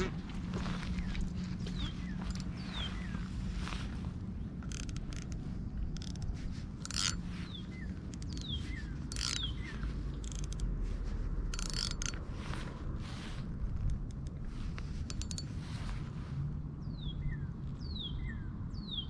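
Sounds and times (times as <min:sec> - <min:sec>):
steady low rumble: 0:00.0 - 0:19.0
bird chirps: 0:00.7 - 0:03.8, 0:07.0 - 0:10.0, 0:16.8 - 0:19.0.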